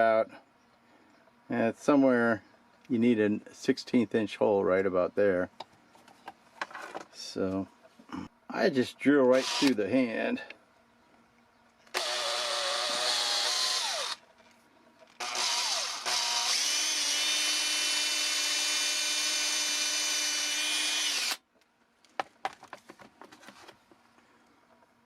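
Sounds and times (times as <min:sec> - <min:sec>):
electric drill boring wood: 0:09.3 - 0:09.8, 0:11.9 - 0:14.2, 0:15.2 - 0:21.4.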